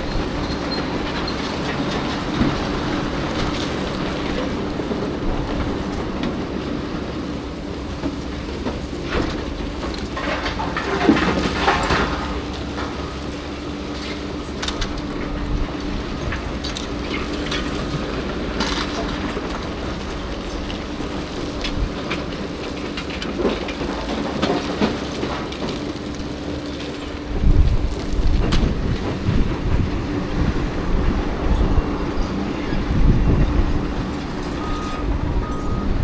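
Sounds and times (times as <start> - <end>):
diesel engine humming: 0.0 - 36.0
deep loud rumble: 27.2 - 36.0.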